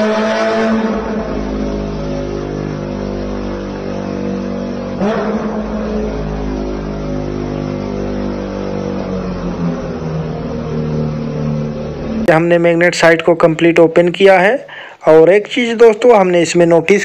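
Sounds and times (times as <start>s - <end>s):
car engine running: 0.0s - 13.2s.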